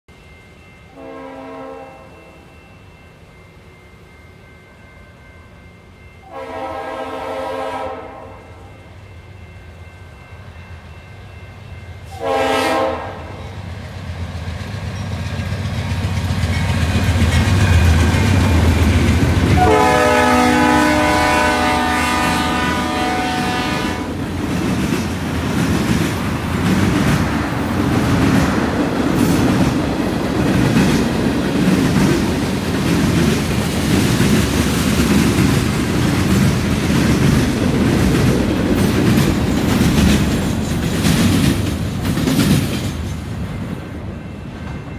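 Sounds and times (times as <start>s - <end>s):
locomotive horn blasts: 0.9s - 2.5s, 6.2s - 8.7s, 12.1s - 13.6s, 19.5s - 24.2s
freight cars clickety-clack: 13.8s - 19.9s, 23.9s - 44.9s.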